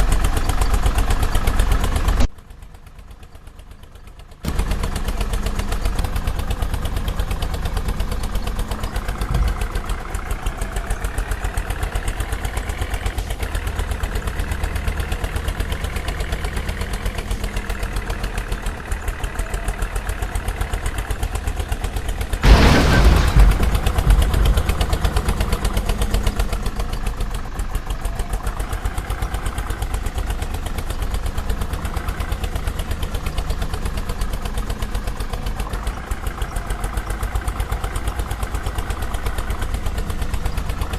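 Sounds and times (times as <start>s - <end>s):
vehicle engine running: 0.0s - 40.9s
sudden loud burst of noise: 22.4s - 25.4s.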